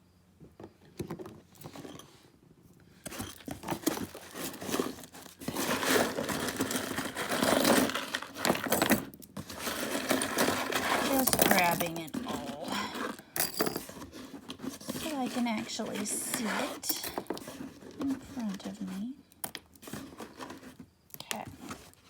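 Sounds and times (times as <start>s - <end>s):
packing material crinkling: 3.1s - 8.8s.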